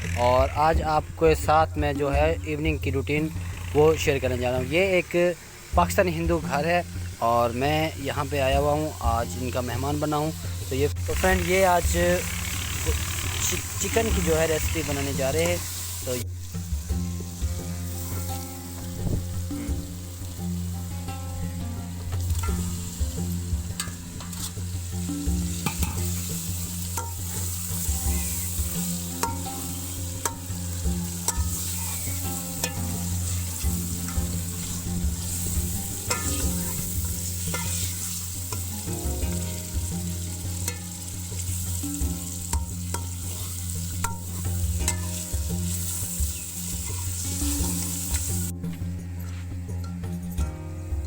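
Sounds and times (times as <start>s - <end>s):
chicken sizzling in a pan: 2.7s - 48.5s
spoon scraping a pan: 22.2s - 48.5s.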